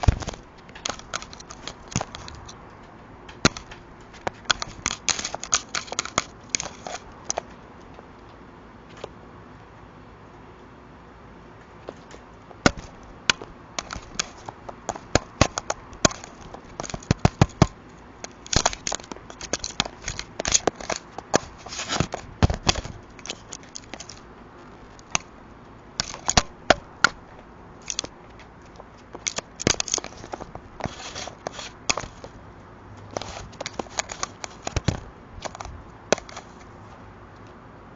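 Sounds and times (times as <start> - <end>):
scratchy scraping on plastic: 0.0 - 2.6, 3.4 - 7.5, 12.6 - 25.3, 26.0 - 27.2, 27.8 - 32.4, 33.0 - 36.8.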